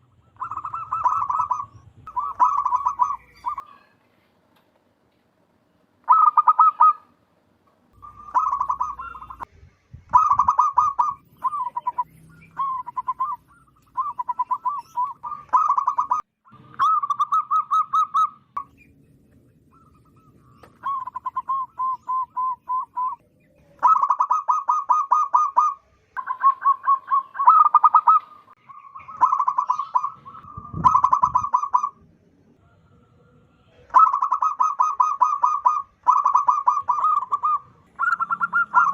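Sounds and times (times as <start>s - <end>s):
dove cooing: 0.0s - 3.9s, 6.1s - 7.1s, 8.0s - 9.5s, 10.1s - 18.4s, 19.7s - 32.0s, 32.6s - 38.9s.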